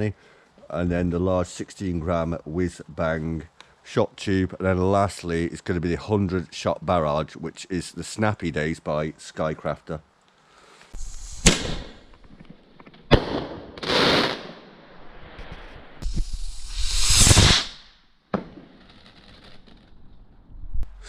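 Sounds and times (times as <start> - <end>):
firework rushing whoosh: 11.0 - 12.1, 13.1 - 18.0
firework hissing burst: 11.0 - 12.3, 13.1 - 18.0
fireworks bangs: 11.0 - 20.1.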